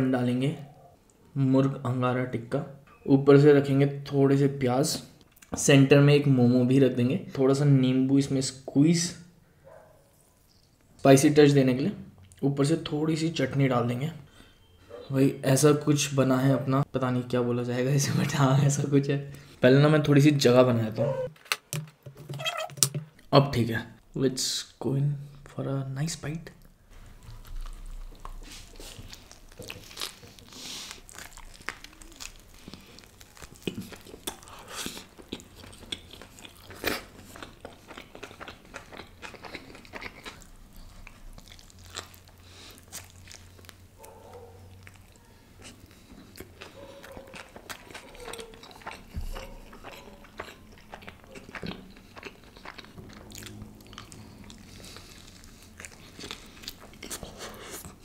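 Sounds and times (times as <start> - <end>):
close biting and chewing: 27.0 - 58.0.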